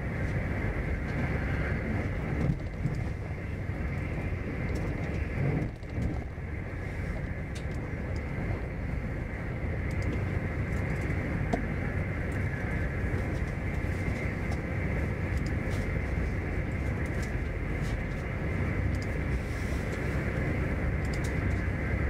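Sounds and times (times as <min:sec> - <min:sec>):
train wheels rumbling on rail: 0:00.0 - 0:22.0
faint clicks and rattles: 0:21.0 - 0:21.7.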